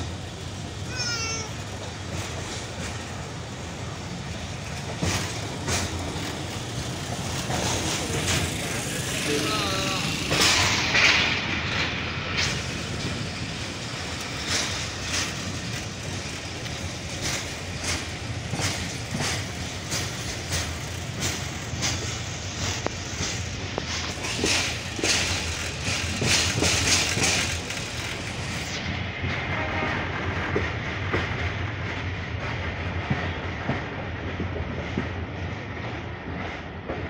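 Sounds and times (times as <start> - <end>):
wheels clacking over rail joints: 0.0 - 29.3
train wheels rolling on rail: 0.0 - 37.0.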